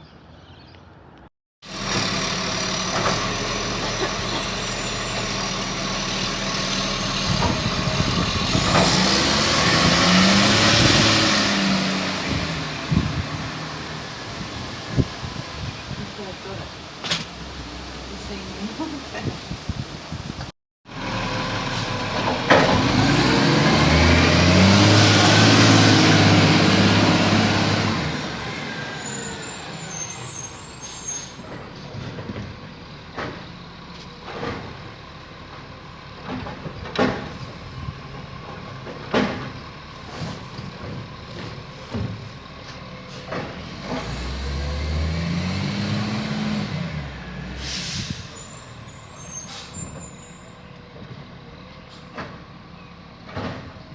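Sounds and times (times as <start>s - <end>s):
diesel truck engine revving: 1.6s - 19.6s, 20.9s - 32.4s, 33.7s - 50.5s
air brake hissing: 47.6s - 50.4s.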